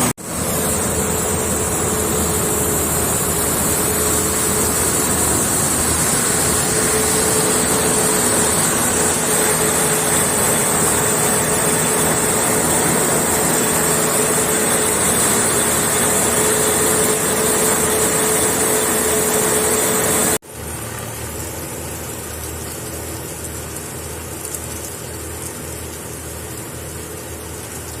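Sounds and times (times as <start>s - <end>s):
combine harvester whine: 0.0s - 22.2s
combine harvester engine hum: 0.0s - 22.8s.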